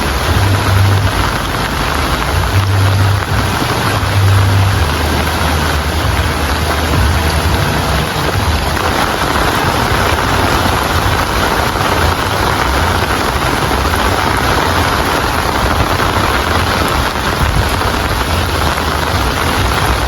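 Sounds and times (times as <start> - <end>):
low rumble: 0.0 - 20.0
steady rain falling: 0.0 - 20.0.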